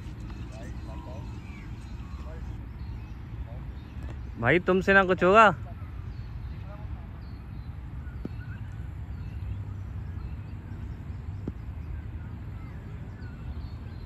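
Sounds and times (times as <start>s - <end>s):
steady low rumble: 0.0s - 4.4s
birds chirping: 0.0s - 14.0s.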